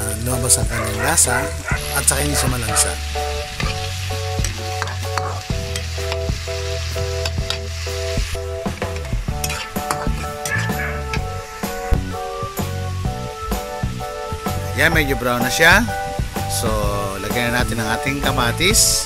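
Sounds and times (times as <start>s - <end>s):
background music with bass line: 0.0s - 19.0s
meat sizzling in a wok: 0.6s - 19.0s
metal spatula scraping wok: 3.6s - 11.0s.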